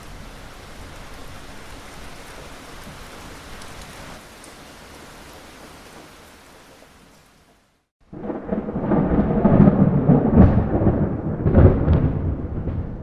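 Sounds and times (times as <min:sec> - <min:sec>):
steady rain: 0:00.0 - 0:13.0
thunder rolling with cracks: 0:08.0 - 0:13.0.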